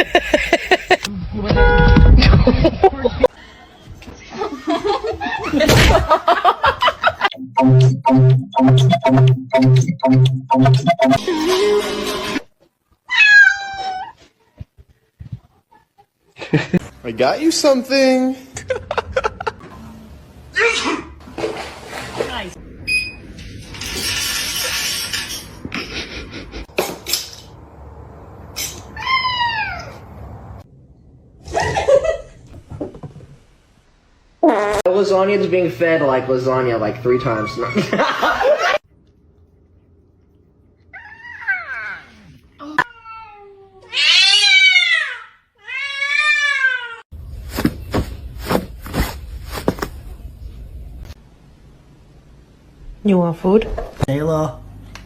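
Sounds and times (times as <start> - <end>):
cat meowing: 13.1 - 14.2, 42.8 - 47.0.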